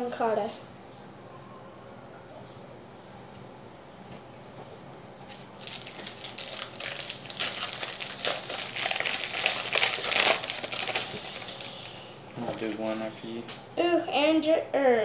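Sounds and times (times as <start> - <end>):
plastic wrapper crinkling: 5.3 - 13.2.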